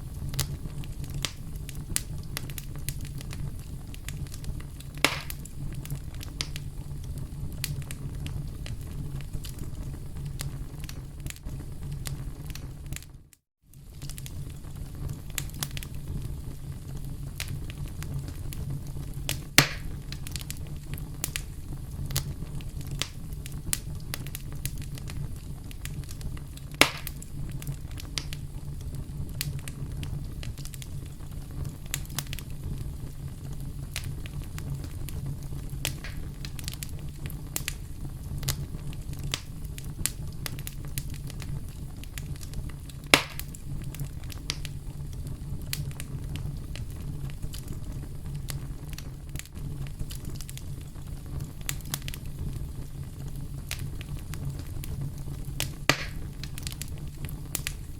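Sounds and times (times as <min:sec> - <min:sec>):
campfire crackling: 0:00.0 - 0:57.9
fire pops: 0:00.0 - 0:57.9
low steady rumble: 0:13.9 - 0:57.9.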